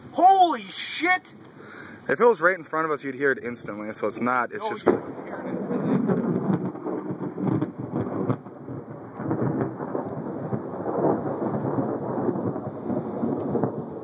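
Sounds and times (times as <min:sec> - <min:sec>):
steady rain: 0:00.0 - 0:14.0
thunder rumbling: 0:04.6 - 0:14.0.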